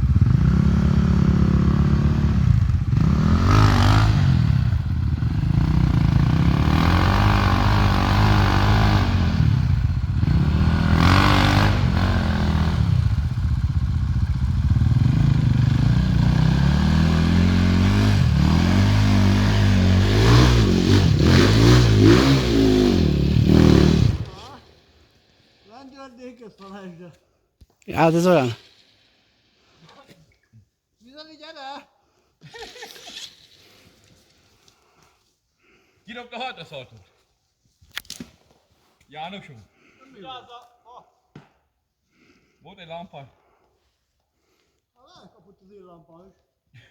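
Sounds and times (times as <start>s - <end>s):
motorcycle engine revving: 0.0s - 24.4s.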